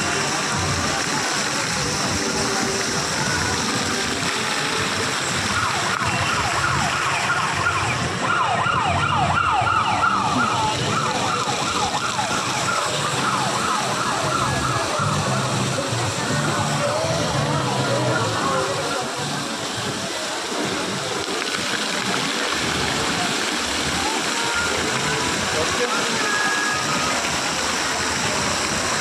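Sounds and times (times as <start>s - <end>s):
steady background noise: 0.0s - 29.0s
siren wailing: 5.2s - 19.1s.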